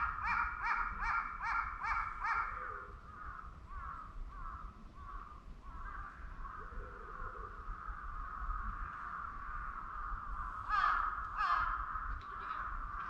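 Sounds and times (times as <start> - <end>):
birds chirping chorus: 0.0 - 13.0.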